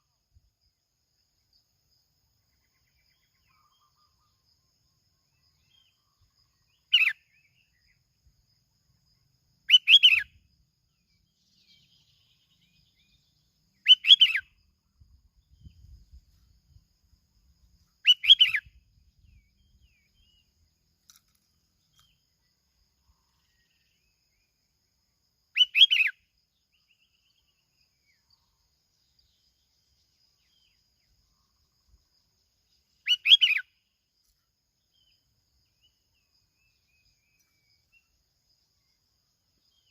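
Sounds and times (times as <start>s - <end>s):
bird whistled call: 6.8s - 7.2s, 9.7s - 10.4s, 13.8s - 14.5s, 18.0s - 18.8s, 25.6s - 26.2s, 33.0s - 33.7s.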